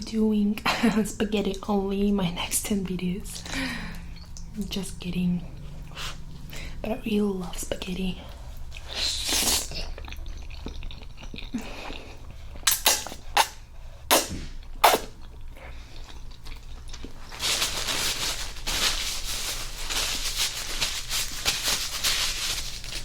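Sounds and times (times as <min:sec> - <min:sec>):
crinkly rustle: 0:16.2 - 0:23.0.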